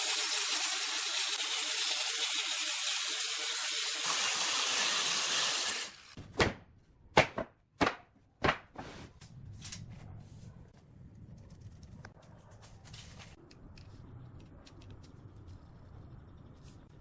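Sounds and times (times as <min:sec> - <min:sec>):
loud power tool hiss: 0:00.0 - 0:06.2.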